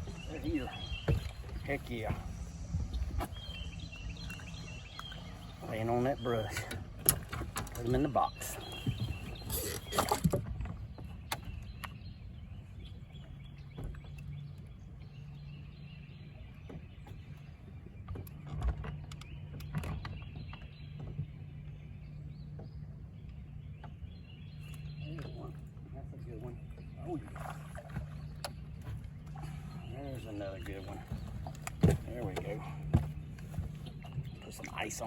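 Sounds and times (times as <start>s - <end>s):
small boat motor humming: 0.0s - 35.0s
knocks and clicks of gear: 3.1s - 12.1s, 16.6s - 21.8s, 30.4s - 35.0s.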